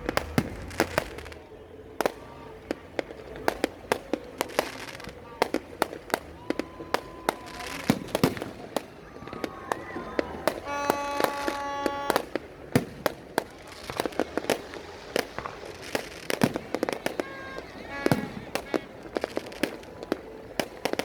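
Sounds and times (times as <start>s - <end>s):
fireworks cracking and banging: 0.0s - 21.0s
horn-like tone: 10.5s - 12.4s, 17.0s - 19.1s.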